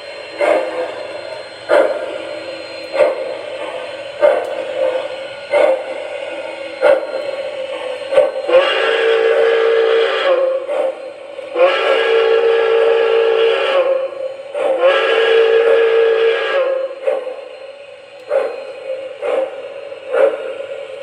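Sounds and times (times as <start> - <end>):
steady tone: 0.0 - 9.9
model train steam whistle: 0.0 - 21.0.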